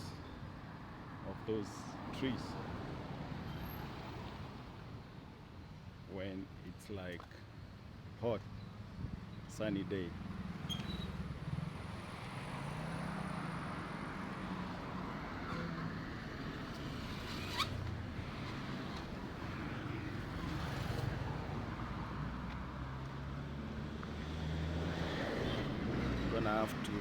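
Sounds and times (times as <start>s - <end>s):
cars driving past: 10.2s - 27.0s.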